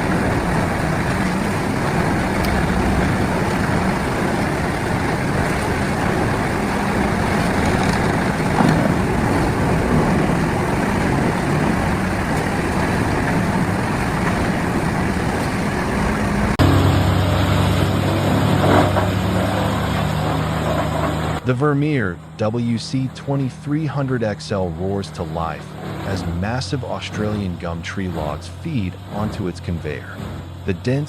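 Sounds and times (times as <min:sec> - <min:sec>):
diesel wood chipper running: 0:00.0 - 0:22.5
engine low hum: 0:00.0 - 0:31.0.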